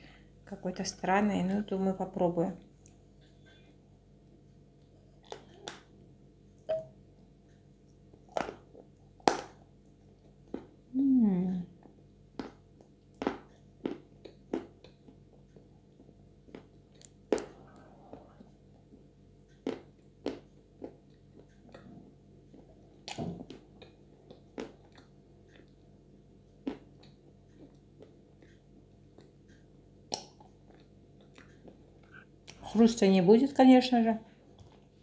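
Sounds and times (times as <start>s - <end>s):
wet chewing clicks and smacks: 12.4s - 18.3s, 18.9s - 32.6s.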